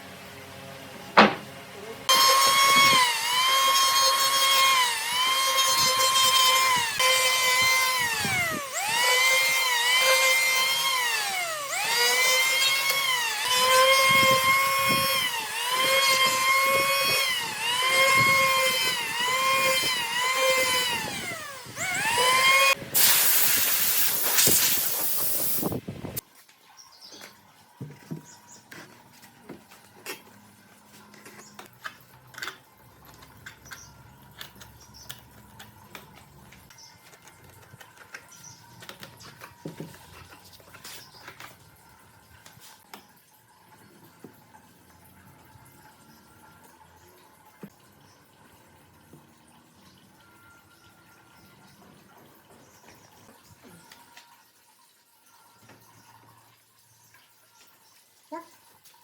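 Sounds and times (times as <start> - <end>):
power tool motor whining: 1.2 - 26.2
loud hiss: 22.9 - 26.2.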